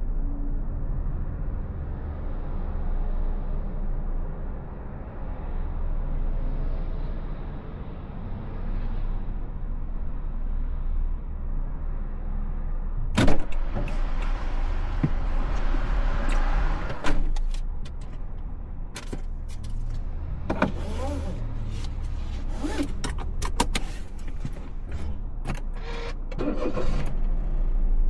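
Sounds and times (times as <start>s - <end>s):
low rumble inside car cabin: 9.4s - 28.0s.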